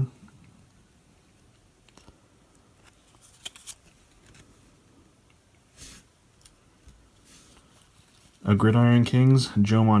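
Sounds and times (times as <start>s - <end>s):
cards rustling: 1.9s - 4.6s.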